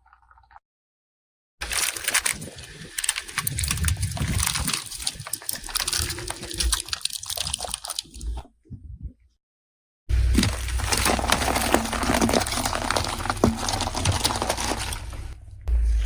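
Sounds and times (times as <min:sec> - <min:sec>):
wet liquid sound: 0:01.6 - 0:09.2
car tyre crushing objects: 0:10.1 - 0:15.6.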